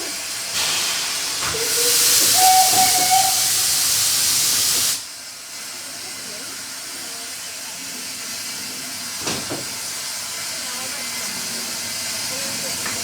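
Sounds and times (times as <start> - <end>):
train hissing: 0.0 - 13.0
faint short whistle-like tones: 1.8 - 3.6.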